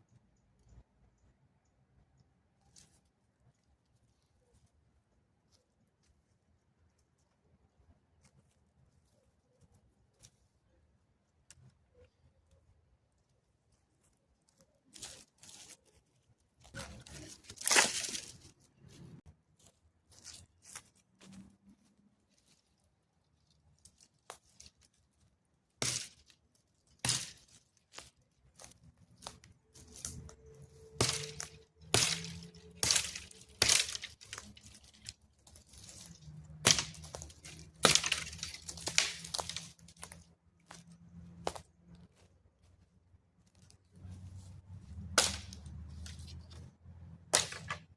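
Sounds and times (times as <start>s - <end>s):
dry wood cracking and snapping: 16.6s - 18.7s, 25.8s - 42.2s.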